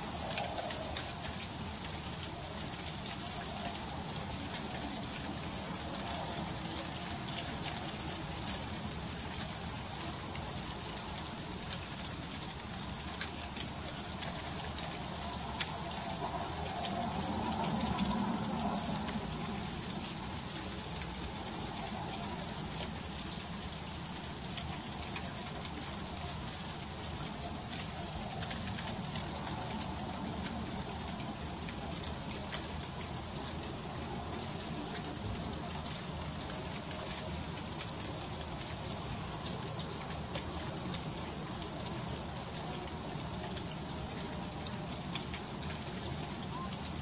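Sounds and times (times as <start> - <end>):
freezing rain pattering: 0.0 - 47.0.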